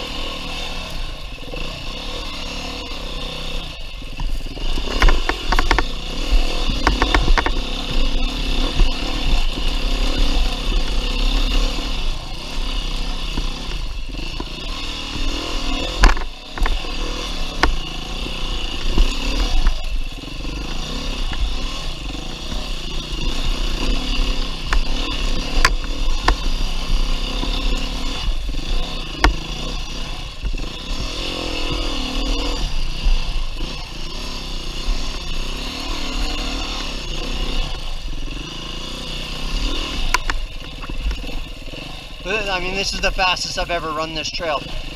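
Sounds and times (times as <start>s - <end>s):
motorcycle engine revving: 0.0s - 44.9s
sharp knocks and clatter: 4.2s - 9.7s, 13.2s - 19.9s, 23.4s - 32.0s.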